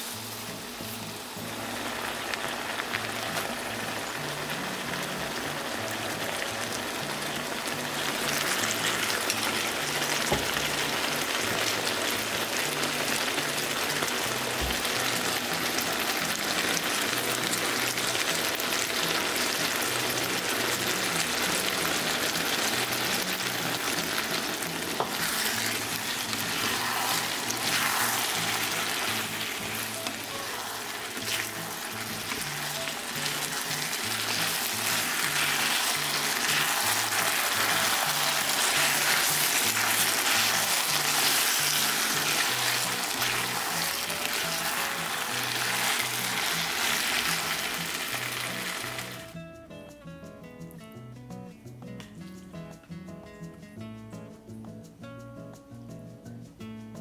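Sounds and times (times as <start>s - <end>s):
vegetables sizzling in frying pan: 0.0s - 49.3s
spatula stirring in pan: 23.5s - 46.1s.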